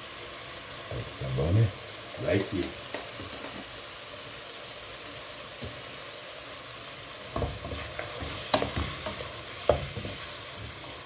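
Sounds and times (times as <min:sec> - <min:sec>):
food sizzling in a frying pan: 0:00.0 - 0:11.0
utensil stirring and scraping pan: 0:07.3 - 0:11.0.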